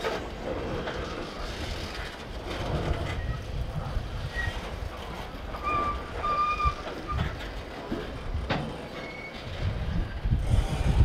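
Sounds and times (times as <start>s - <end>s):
freight wagons rumbling on rails: 0.0s - 11.0s
thin wheel squeals: 5.5s - 7.4s, 8.9s - 9.6s.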